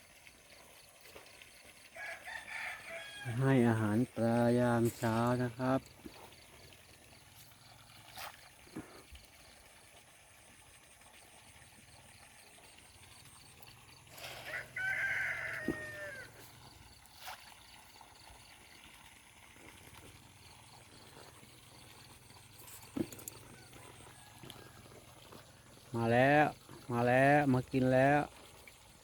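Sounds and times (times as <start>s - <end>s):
rooster crowing: 2.0s - 3.4s, 14.4s - 16.4s.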